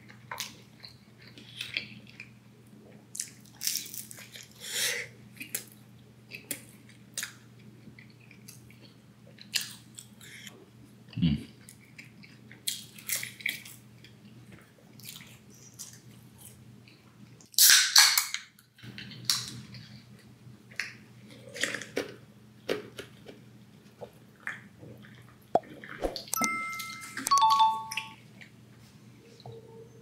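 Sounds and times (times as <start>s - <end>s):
short high tones: 26.4s - 28.2s.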